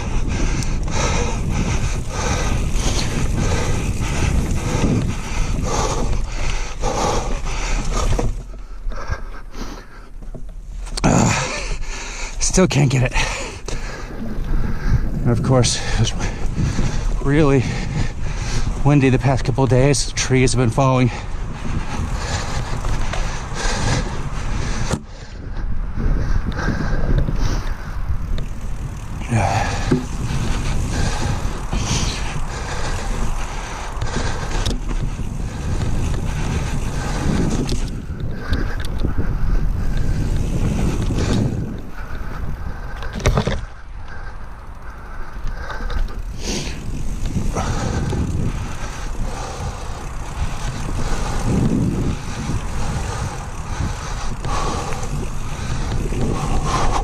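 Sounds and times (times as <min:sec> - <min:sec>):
bike knocks and rattles: 0:00.0 - 0:11.5, 0:26.0 - 0:57.0
wind on microphone: 0:00.0 - 0:12.0, 0:12.6 - 0:57.0
bike tyres rumbling on dirt: 0:00.0 - 0:57.0.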